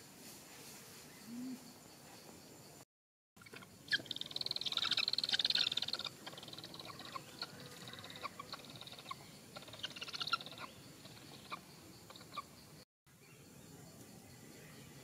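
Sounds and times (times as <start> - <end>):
bird chirps: 3.4 - 13.7.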